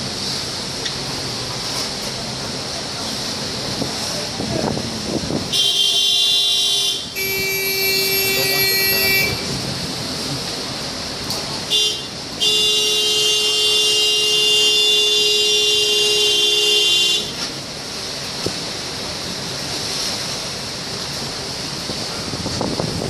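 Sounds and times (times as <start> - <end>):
wind noise: 3.6 - 5.6, 21.6 - 23.0
horn blasts: 5.5 - 9.6, 11.7 - 17.5.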